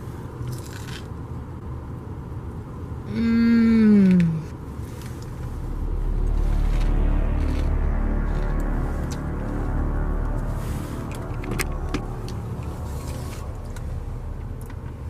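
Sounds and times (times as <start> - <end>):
low deep music: 5.1 - 15.0.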